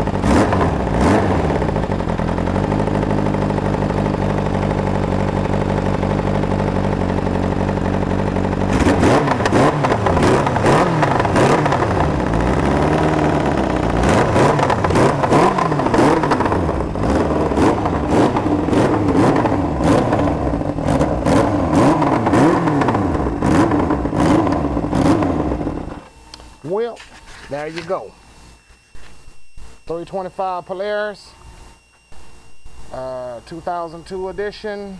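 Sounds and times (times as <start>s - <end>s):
atv engine idling and revving: 0.0s - 26.1s.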